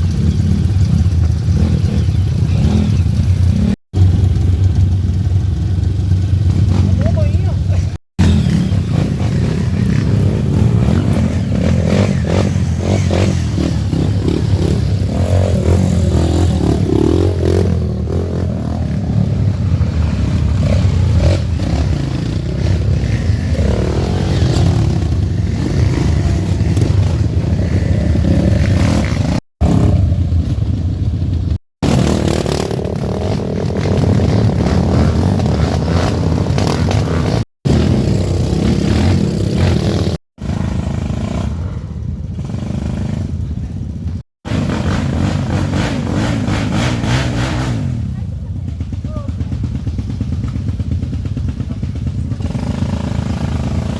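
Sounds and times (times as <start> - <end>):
motorcycles revving: 0.0 - 53.9.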